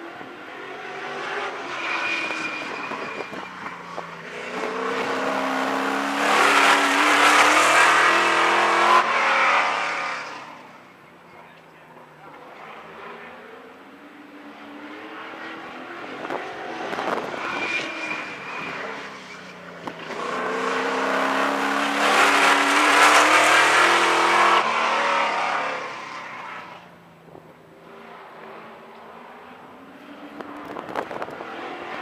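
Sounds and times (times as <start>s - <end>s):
race car engine passing: 4.2s - 10.6s, 12.7s - 26.8s.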